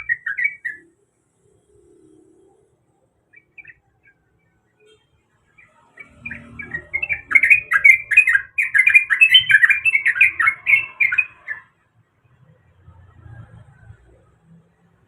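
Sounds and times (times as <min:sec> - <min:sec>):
bird singing warbling notes: 0:00.0 - 0:04.9, 0:05.6 - 0:11.8.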